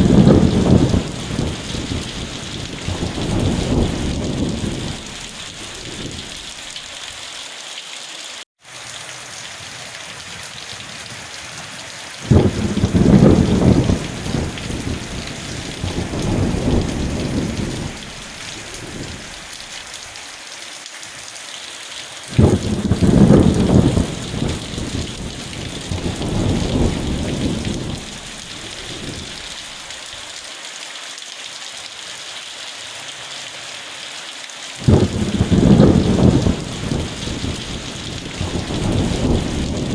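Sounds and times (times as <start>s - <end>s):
thunder rumbles: 0.0s - 6.8s, 9.6s - 19.7s, 22.3s - 29.8s, 34.8s - 39.9s
steady rain: 0.0s - 39.9s.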